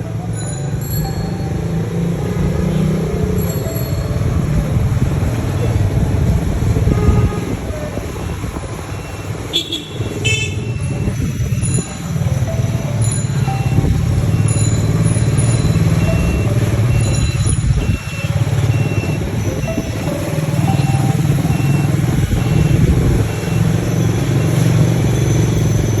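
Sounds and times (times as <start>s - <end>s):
quad bike engine running: 0.0s - 26.0s
short high beeps: 10.7s - 24.7s.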